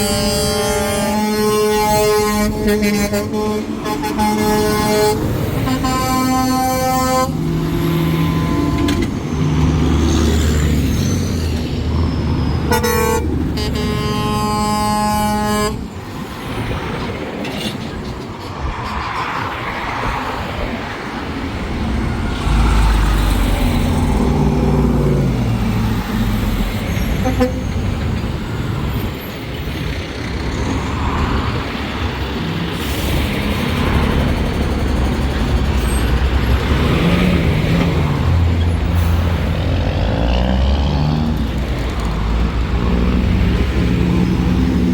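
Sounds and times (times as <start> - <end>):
truck horns blowing: 0.0 - 10.0, 12.4 - 16.0, 23.6 - 28.2
truck engines rumbling: 0.0 - 44.9.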